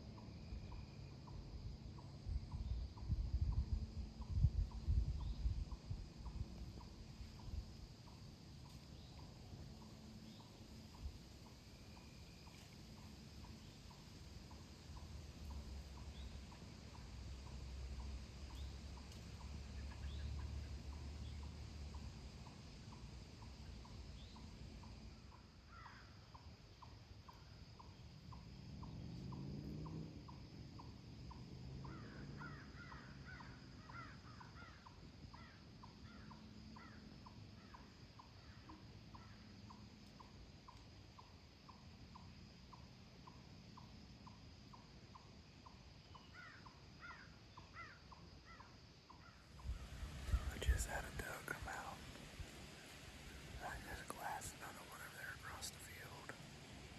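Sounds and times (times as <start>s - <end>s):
faint steady ticking: 5.8s - 19.8s.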